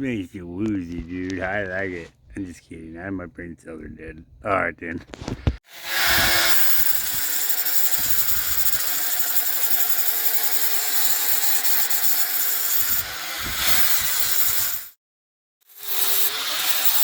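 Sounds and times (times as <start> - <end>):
angle grinder grinding steel: 5.7 - 14.9, 15.7 - 17.0.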